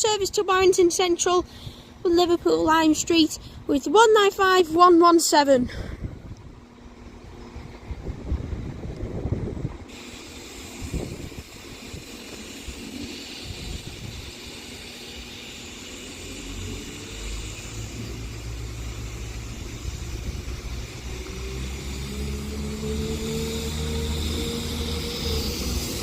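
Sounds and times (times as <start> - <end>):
rising whine: 6.2 - 26.0
train diesel engines droning: 9.9 - 26.0.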